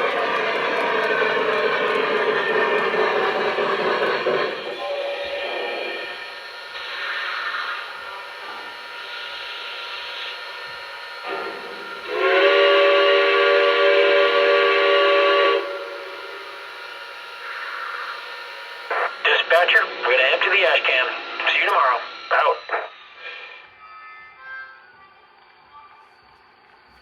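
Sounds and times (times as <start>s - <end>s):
steam whistle blast: 0.0s - 19.2s
steam hiss bursts: 0.0s - 20.1s, 21.0s - 23.9s.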